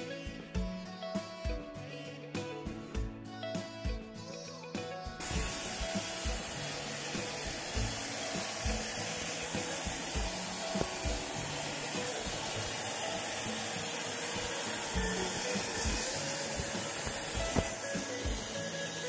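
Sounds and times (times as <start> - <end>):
hair dryer blowing: 5.2 - 19.0.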